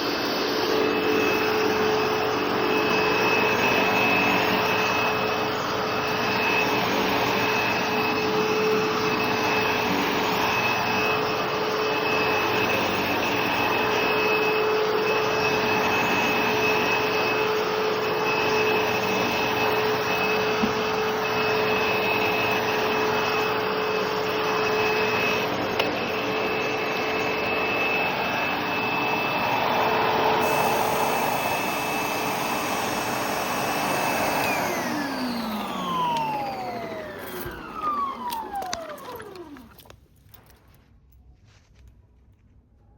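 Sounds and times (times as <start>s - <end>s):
vacuum motor spinning down: 0.0s - 39.9s
upright vacuum cleaner whining: 0.0s - 40.0s.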